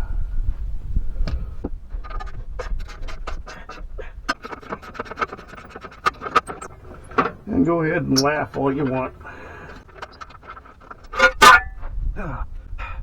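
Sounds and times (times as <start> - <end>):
low steady rumble: 0.0 - 13.0
tools clicking and scraping metal: 2.0 - 11.8.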